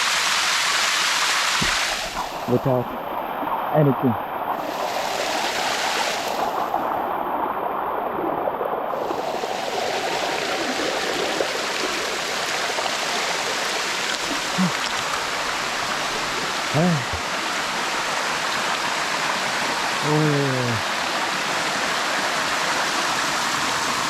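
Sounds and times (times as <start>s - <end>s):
waterfall rushing over rocks: 0.0s - 24.0s
short voice sounds: 14.3s - 15.0s, 16.7s - 17.2s, 20.0s - 20.8s.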